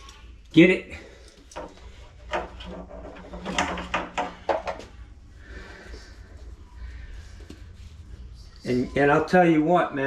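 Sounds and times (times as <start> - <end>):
knocks and clicks of handling: 1.4 - 5.0.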